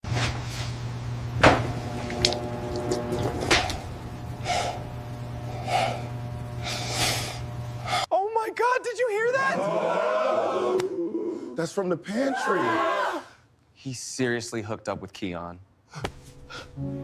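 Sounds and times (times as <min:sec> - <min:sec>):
steady low hum: 0:00.1 - 0:08.1.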